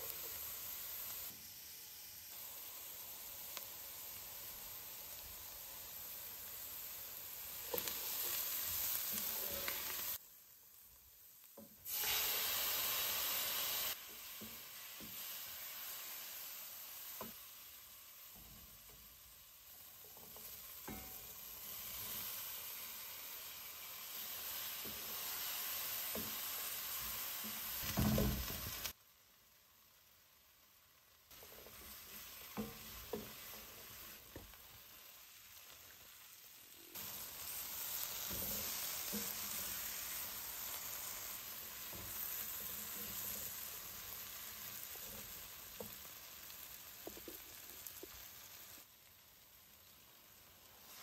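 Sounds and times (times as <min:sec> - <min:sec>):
vegetables sizzling in a pan: 0:00.0 - 0:51.0
spoon knocking and scraping pan: 0:07.6 - 0:10.0, 0:14.0 - 0:15.4, 0:19.9 - 0:22.2, 0:24.7 - 0:28.9, 0:31.4 - 0:34.6, 0:38.0 - 0:40.3, 0:41.0 - 0:46.1, 0:46.8 - 0:48.3.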